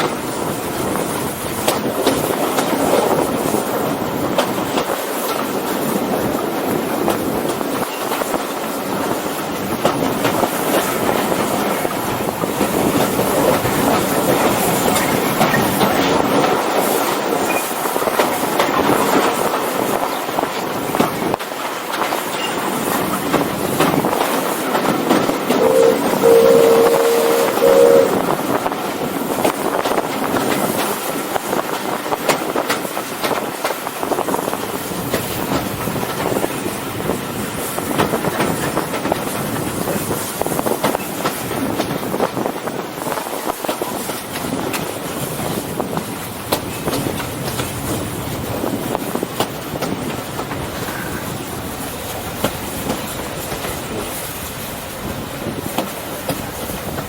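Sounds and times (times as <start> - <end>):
wheels clicking over rail joints: 0.0 - 26.6, 29.4 - 57.0
steam locomotive whistle: 25.1 - 28.4.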